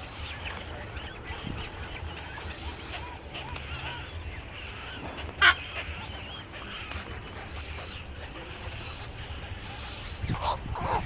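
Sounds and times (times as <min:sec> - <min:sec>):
birds chirping: 0:00.0 - 0:11.0
loud harsh bird squawk: 0:02.4 - 0:11.0.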